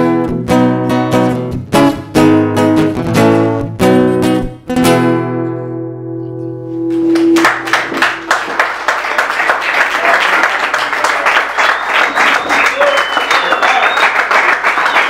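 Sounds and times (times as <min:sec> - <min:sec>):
acoustic guitar chord ringing: 0:02.2 - 0:08.3
audience applause: 0:07.2 - 0:15.0.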